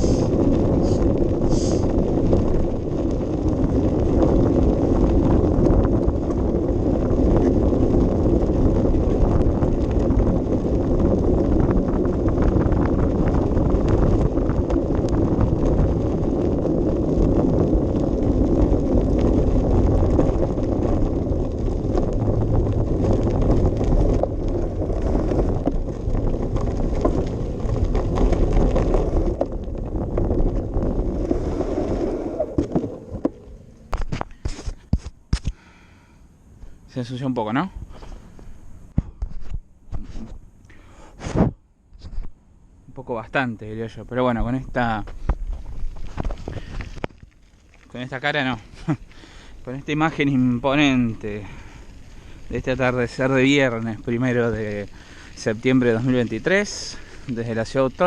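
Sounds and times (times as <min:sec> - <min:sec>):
wind buffeting microphone: 0:00.0 - 0:35.5, 0:41.2 - 0:58.0
bicycle rumbling and rattling: 0:00.0 - 0:58.0.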